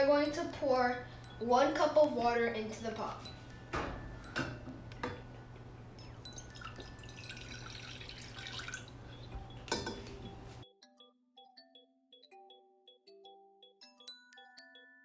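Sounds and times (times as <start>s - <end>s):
glockenspiel background music: 0.0s - 15.0s
water dripping: 6.3s - 9.0s
water pouring into a pot: 6.4s - 9.0s.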